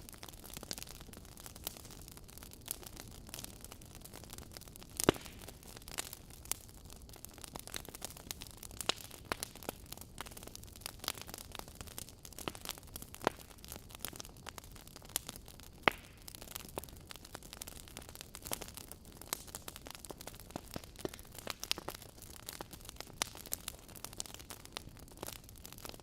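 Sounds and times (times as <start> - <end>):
logs crackling and popping: 0.0 - 26.0.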